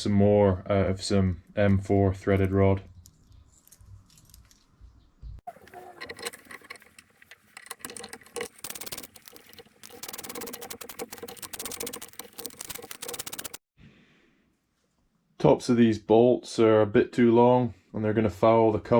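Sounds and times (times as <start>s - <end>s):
metallic clicking and rattling: 5.6s - 13.6s.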